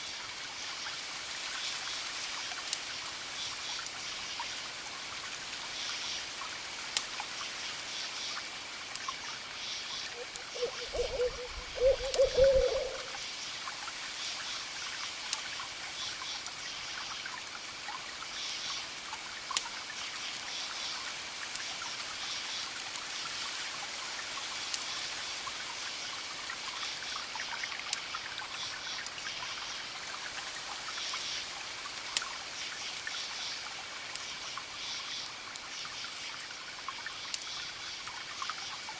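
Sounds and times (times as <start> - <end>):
crickets chirping: 9.6 - 13.2
distant waves hissing: 10.4 - 13.2.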